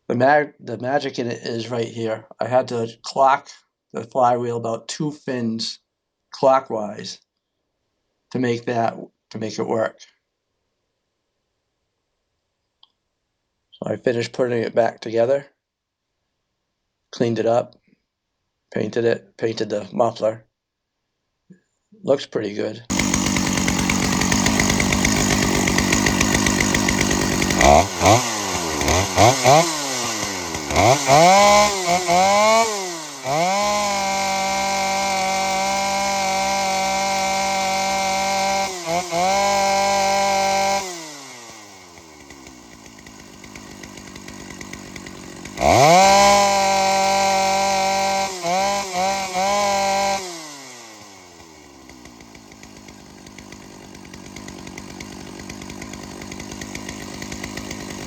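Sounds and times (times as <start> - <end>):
chainsaw engine revving and idling: 22.9 - 58.0.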